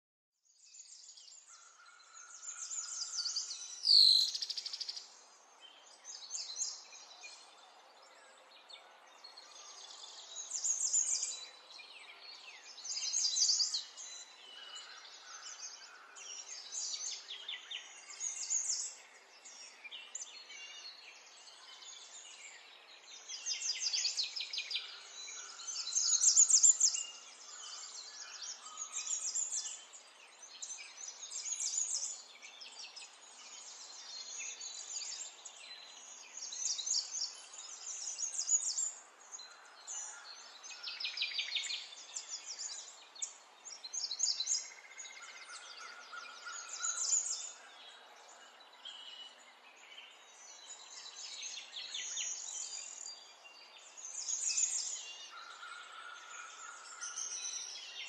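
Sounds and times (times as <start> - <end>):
songbirds chirping and trilling: 0.4 - 58.0.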